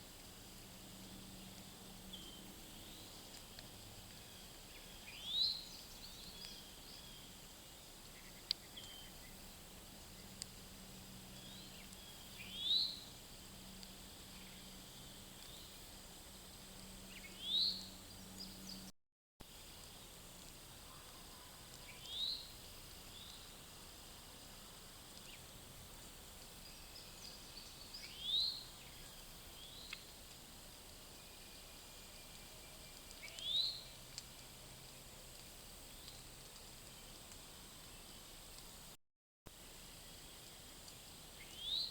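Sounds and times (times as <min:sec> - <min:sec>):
faint bird chirps: 0:04.1 - 0:09.5, 0:20.8 - 0:23.6.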